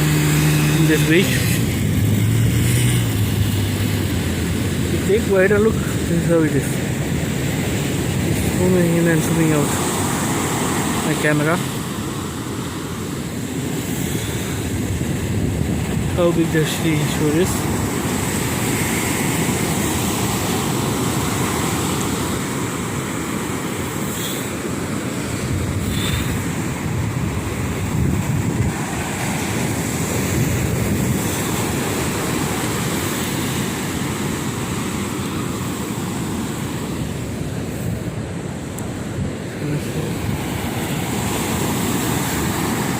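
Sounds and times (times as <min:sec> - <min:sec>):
waves breaking on beach: 0:00.0 - 0:42.9.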